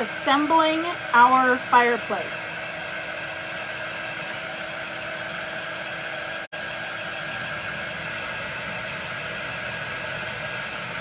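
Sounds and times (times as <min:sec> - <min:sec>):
hot-air dryer blowing: 0:00.0 - 0:11.0.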